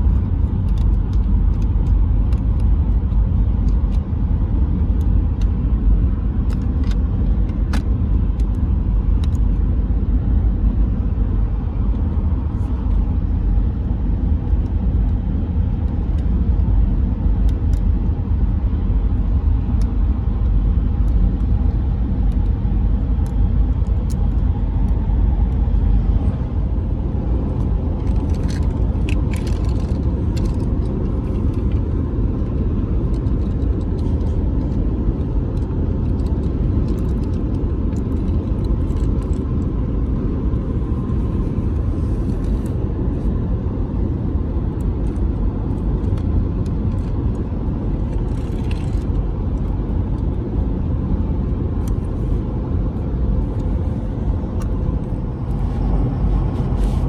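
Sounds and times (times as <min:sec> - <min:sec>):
car interior rumble: 0:00.0 - 0:57.0
faint clicks and rattles: 0:27.6 - 0:39.8, 0:48.0 - 0:50.3.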